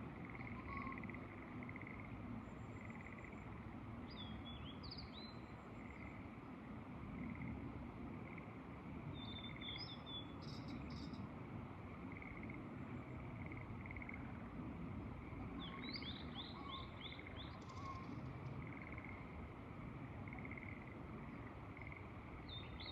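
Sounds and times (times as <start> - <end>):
songbird singing: 0.1 - 6.3, 9.1 - 11.3, 15.2 - 19.4, 20.2 - 22.9
faint chirring call: 0.2 - 2.1, 15.6 - 19.4.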